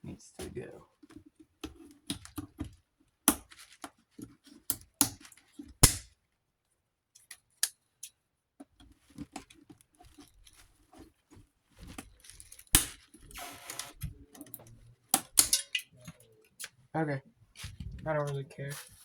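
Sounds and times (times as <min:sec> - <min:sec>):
metal parts clicking and knocking: 0:14.3 - 0:16.3.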